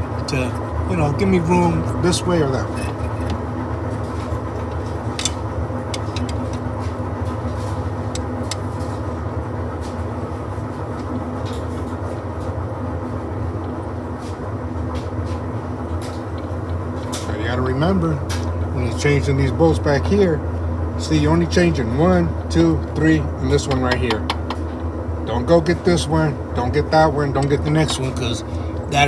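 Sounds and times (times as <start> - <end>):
low mechanical drone: 0.0 - 29.0
hand tools clicking on metal: 5.2 - 6.6.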